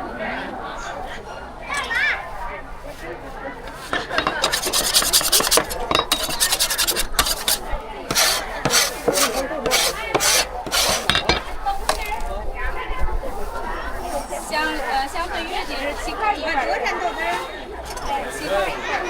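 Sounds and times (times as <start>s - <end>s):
scraping and rubbing strokes: 1.7s - 16.5s.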